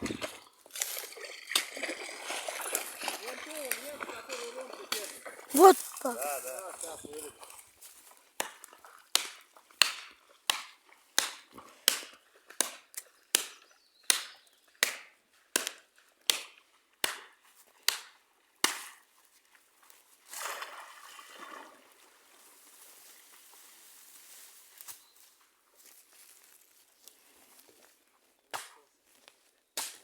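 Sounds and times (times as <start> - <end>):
sharp chopping strikes on wood: 8.4 - 17.3, 17.9 - 18.9.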